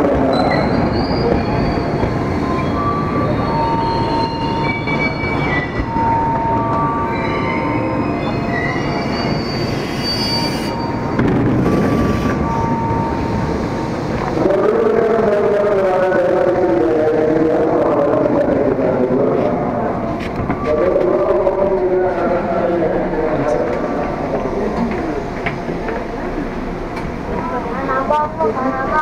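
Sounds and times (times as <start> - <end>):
train rumble: 0.0 - 29.0
high brake squeals: 0.3 - 13.9.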